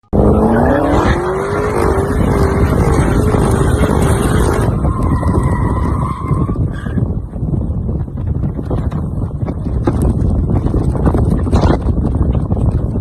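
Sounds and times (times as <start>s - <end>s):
car engine accelerating: 0.1s - 5.9s.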